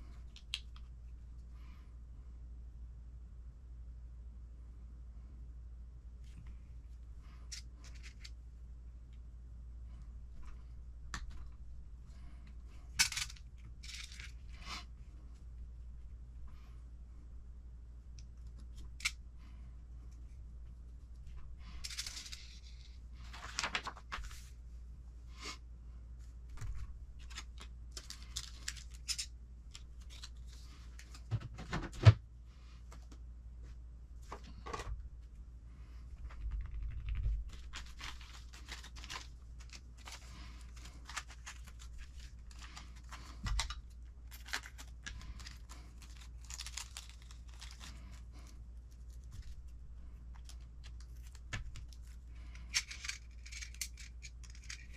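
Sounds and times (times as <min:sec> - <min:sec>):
plastic bag crinkling and tearing: 0:37.5 - 0:48.4
small plastic parts clicking: 0:50.3 - 0:54.9.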